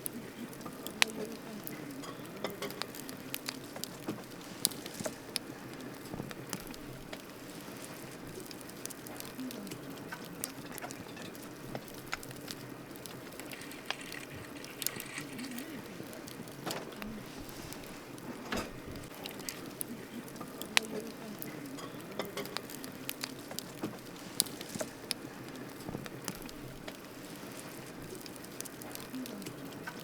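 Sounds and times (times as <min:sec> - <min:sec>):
wood crackling and popping: 0:00.0 - 0:30.0.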